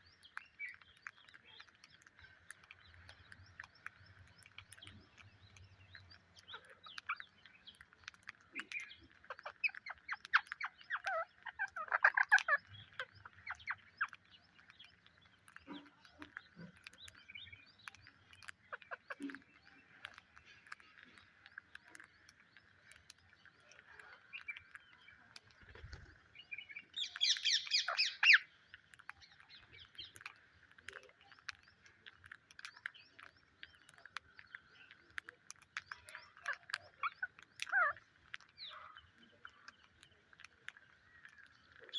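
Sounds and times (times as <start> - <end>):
background bird chorus: 0.0 - 41.9
parrots chirping and calling: 8.6 - 14.2, 27.0 - 28.5, 36.3 - 38.0.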